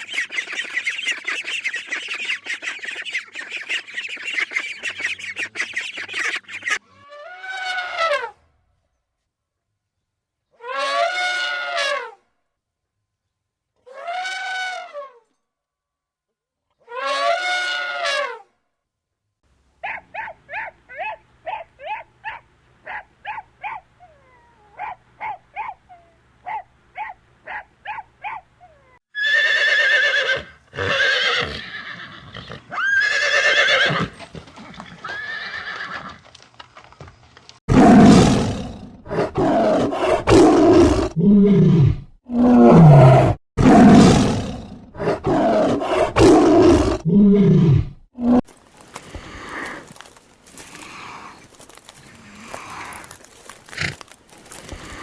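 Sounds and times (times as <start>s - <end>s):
short high animal chirps: 0.0s - 6.8s
harsh animal calls: 0.0s - 8.3s, 37.7s - 55.0s.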